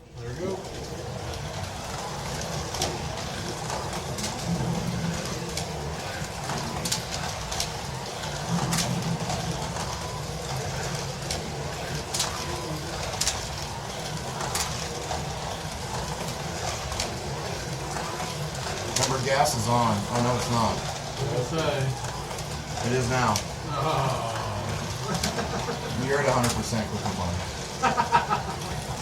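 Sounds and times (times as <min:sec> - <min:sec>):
slot cars humming on track: 0:00.0 - 0:29.0.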